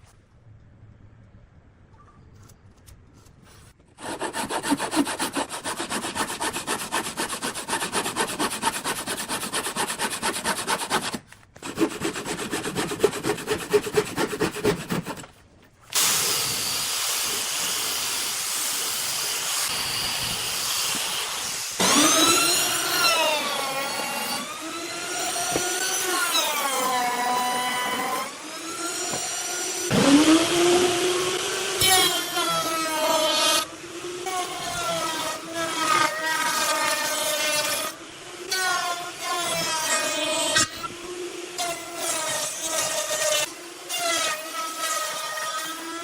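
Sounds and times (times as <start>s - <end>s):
saw rasping through wood: 4.0s - 15.4s, 16.0s - 46.0s
hissy cutting noise: 15.9s - 22.5s.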